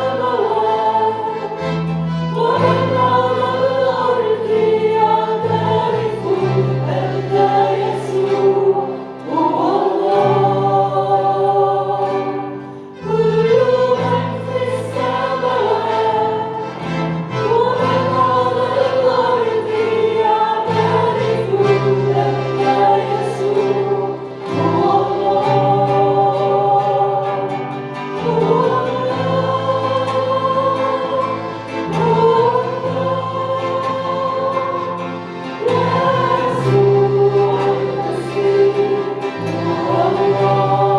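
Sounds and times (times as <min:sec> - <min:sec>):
group singing a hymn: 0:00.0 - 0:40.9.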